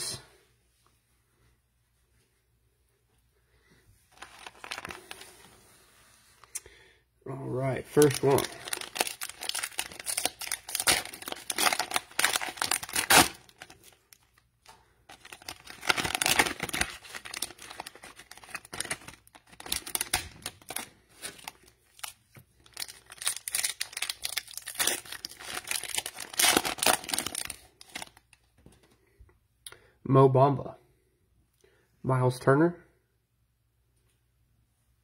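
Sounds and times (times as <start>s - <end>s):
cellophane wrapper crinkling: 4.1s - 5.4s, 7.8s - 28.8s.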